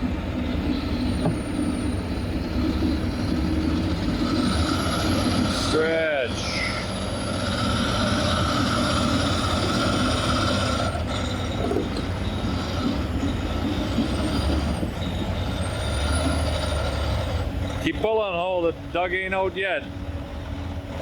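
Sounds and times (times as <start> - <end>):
heavy diesel engines working: 0.0 - 21.0
steady whine: 0.0 - 21.0.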